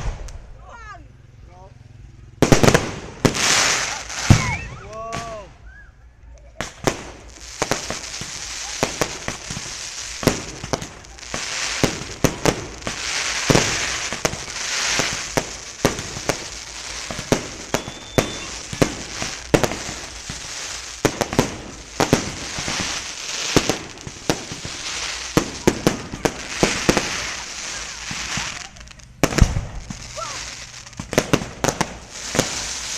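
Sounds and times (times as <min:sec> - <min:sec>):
fireworks crackle and hiss: 0:00.0 - 0:01.0, 0:02.2 - 0:32.9
fireworks shells bursting: 0:06.6 - 0:32.9.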